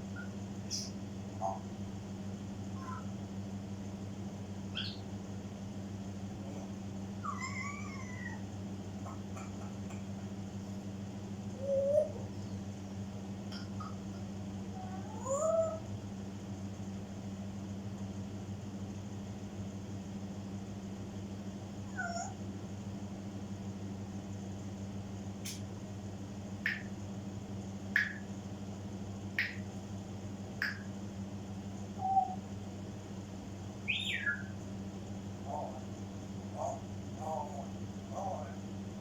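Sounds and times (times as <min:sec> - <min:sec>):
parrot calling: 0:00.2 - 0:01.7, 0:02.8 - 0:03.2, 0:04.7 - 0:05.1, 0:07.2 - 0:08.4, 0:14.8 - 0:15.9, 0:21.9 - 0:22.4, 0:32.0 - 0:32.4, 0:33.8 - 0:34.6, 0:35.4 - 0:38.6.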